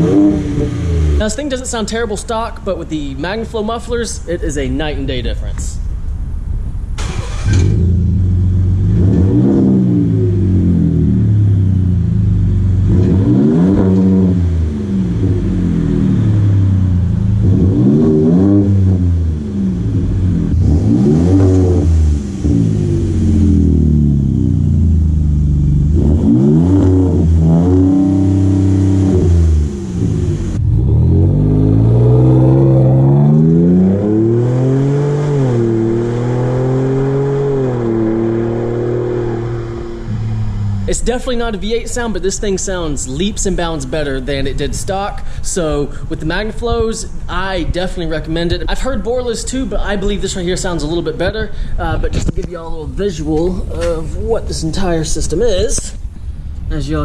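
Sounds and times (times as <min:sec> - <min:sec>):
car engine revving: 0:00.0 - 0:04.3, 0:05.8 - 0:44.9.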